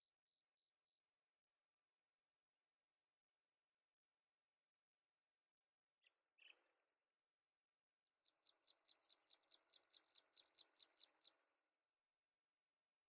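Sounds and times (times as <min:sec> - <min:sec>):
faint small bird chirping: 0:06.0 - 0:07.3, 0:08.0 - 0:11.8.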